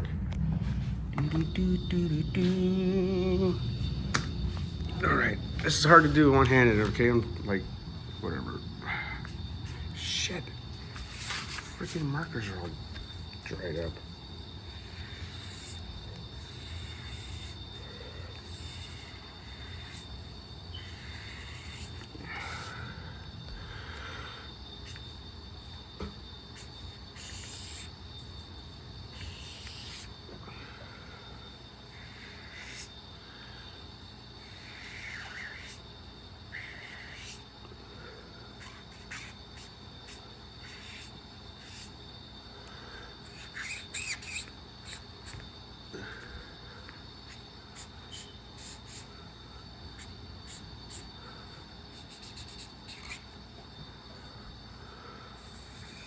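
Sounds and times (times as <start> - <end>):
faint high-pitched tone: 0.0 - 6.0
faint high-pitched whine: 0.0 - 56.0
markers scratching on paper: 14.7 - 17.6, 26.5 - 28.0, 29.1 - 30.2, 38.6 - 42.0, 43.3 - 45.5, 47.3 - 49.1, 50.0 - 51.1, 51.9 - 53.3.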